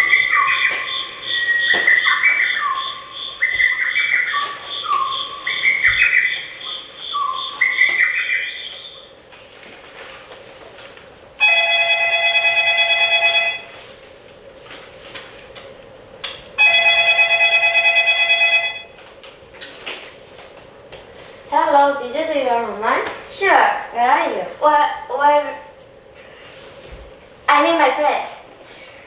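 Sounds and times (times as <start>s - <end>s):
electronic tune through speaker: 0.0s - 9.0s.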